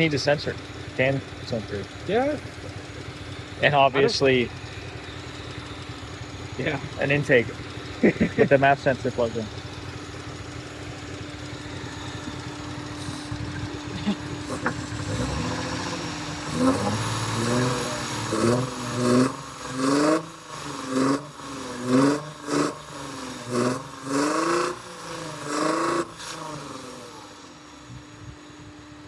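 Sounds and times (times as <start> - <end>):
car engine revving and misfiring: 0.0 - 28.9.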